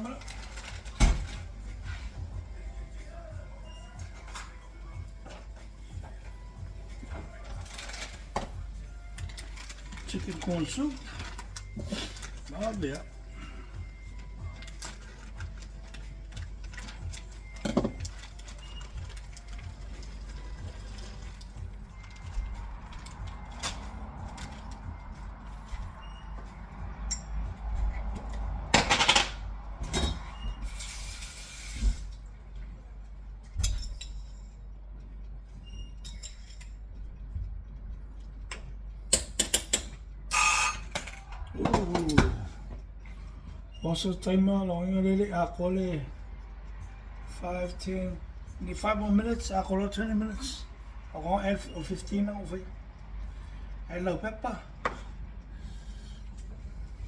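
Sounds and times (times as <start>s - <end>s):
steady low hum: 45.4s - 57.0s.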